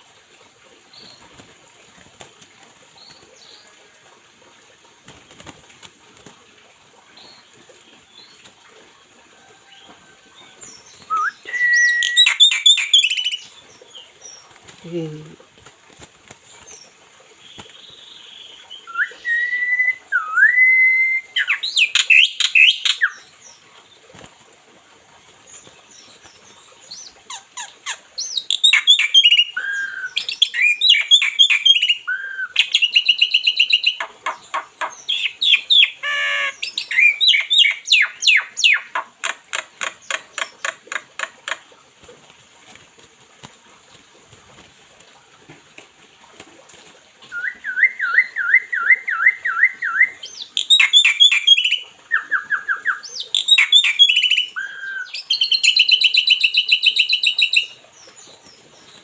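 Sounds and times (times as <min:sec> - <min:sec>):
bird singing whistles and trills: 0:10.9 - 0:13.4, 0:18.8 - 0:23.2, 0:47.3 - 0:57.8.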